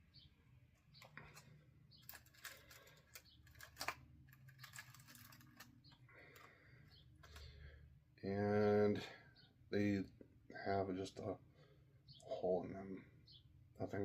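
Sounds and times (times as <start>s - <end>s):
plastic package crinkling: 1.0s - 7.5s.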